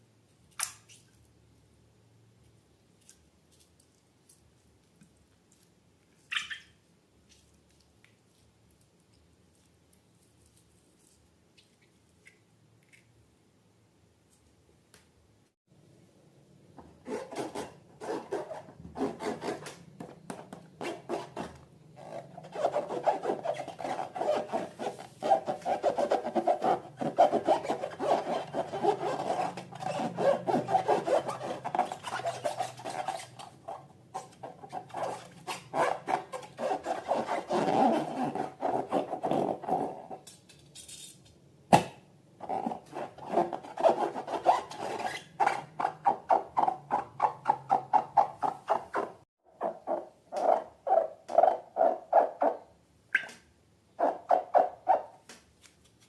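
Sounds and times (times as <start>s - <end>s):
rubbing and scraping strokes: 20.8s - 39.9s.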